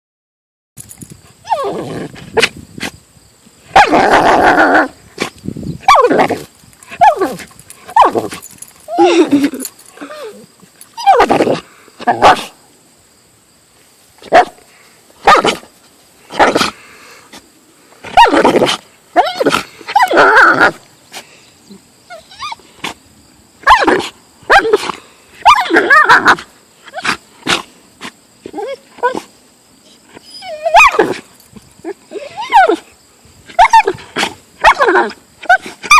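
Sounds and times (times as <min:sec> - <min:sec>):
dog growling and barking: 0:01.5 - 0:02.6, 0:03.7 - 0:12.6, 0:15.2 - 0:15.7, 0:16.3 - 0:16.8, 0:18.0 - 0:20.8, 0:23.6 - 0:27.7, 0:30.2 - 0:32.8, 0:33.5 - 0:35.9.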